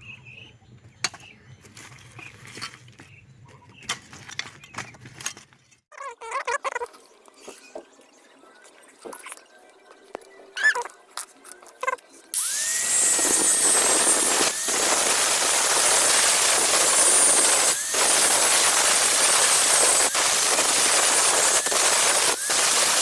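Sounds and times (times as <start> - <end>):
handling clicks and squeaks: 0.8 - 7.8, 10.1 - 12.2
electric grinder grinding metal: 12.4 - 23.0.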